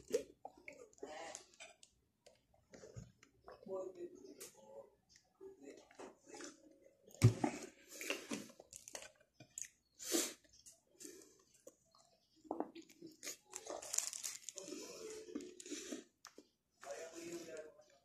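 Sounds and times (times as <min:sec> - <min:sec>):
person chewing bread: 0:05.1 - 0:16.8.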